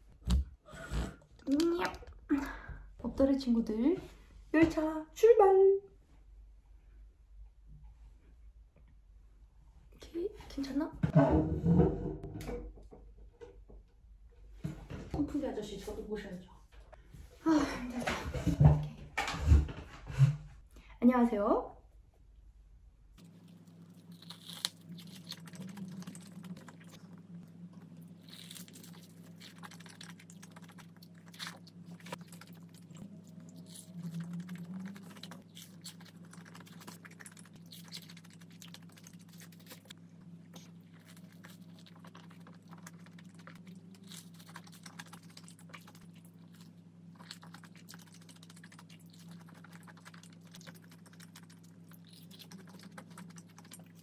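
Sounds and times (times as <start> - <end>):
biting into fried food: 23.2 - 27.2, 27.8 - 54.0
crunching and wet chewing: 23.2 - 54.0.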